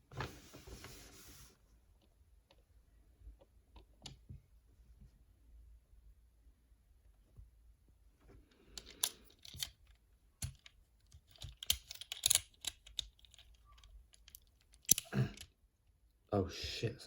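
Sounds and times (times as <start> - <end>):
plastic action figure clicking: 10.4 - 15.5.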